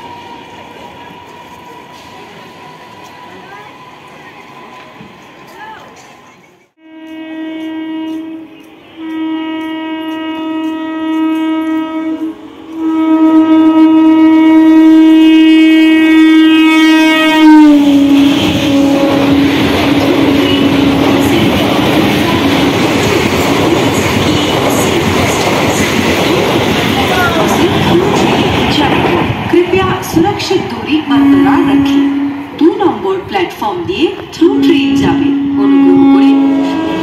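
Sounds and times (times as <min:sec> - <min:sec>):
train rushing past: 0:00.0 - 0:37.0
train horn blasts: 0:06.8 - 0:22.8, 0:30.9 - 0:32.7, 0:34.4 - 0:37.0.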